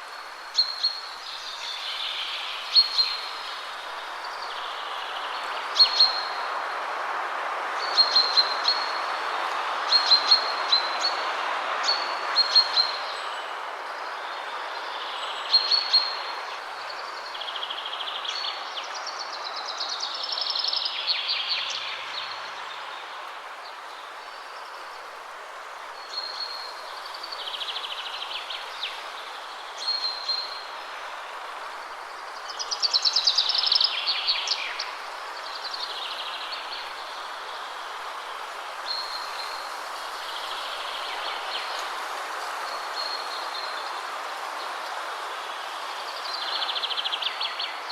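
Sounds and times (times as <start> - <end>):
wind rushing through trees: 0.0 - 47.9.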